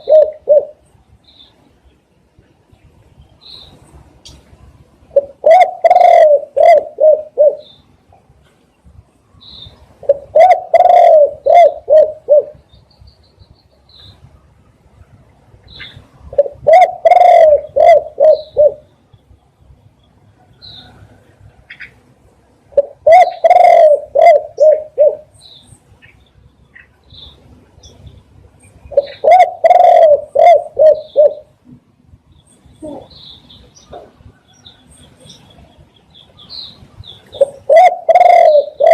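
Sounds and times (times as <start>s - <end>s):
dove cooing: 0.0s - 0.9s, 5.1s - 7.8s, 10.0s - 12.7s, 15.8s - 18.9s, 22.7s - 25.4s, 28.9s - 31.6s, 32.8s - 33.2s, 37.3s - 38.9s
high chirps of small birds: 0.0s - 2.0s, 2.8s - 4.4s, 7.6s - 8.0s, 8.7s - 9.9s, 12.6s - 14.4s, 15.6s - 16.1s, 18.3s - 22.0s, 24.6s - 31.5s, 32.1s - 38.9s.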